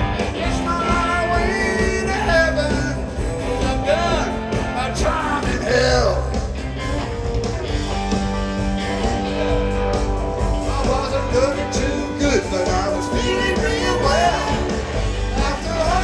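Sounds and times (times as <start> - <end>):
bass guitar: 0.0 - 16.0
drums: 0.0 - 16.0
electric guitars: 0.0 - 16.0
person singing: 10.7 - 16.0.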